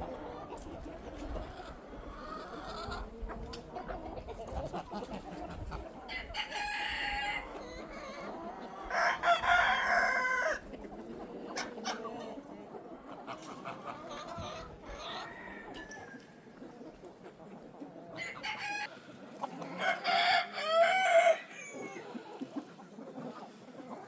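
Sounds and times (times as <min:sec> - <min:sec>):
chickens clucking: 0:00.0 - 0:24.0
rooster crowing: 0:08.9 - 0:10.6, 0:19.7 - 0:22.1.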